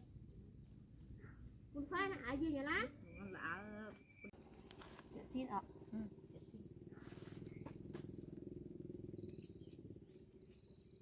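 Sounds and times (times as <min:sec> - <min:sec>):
crickets trilling: 0:00.0 - 0:11.0
faint low rapid throbbing: 0:05.5 - 0:11.0.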